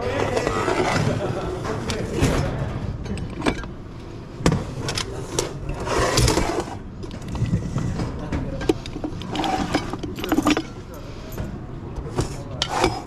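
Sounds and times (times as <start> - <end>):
metal parts scraping and sliding: 0.0 - 2.4, 3.0 - 13.0
metal parts knocking: 8.4 - 11.5.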